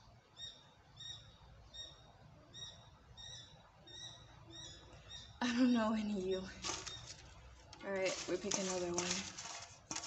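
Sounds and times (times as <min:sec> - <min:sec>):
small bird chirping faintly: 0:00.0 - 0:07.4.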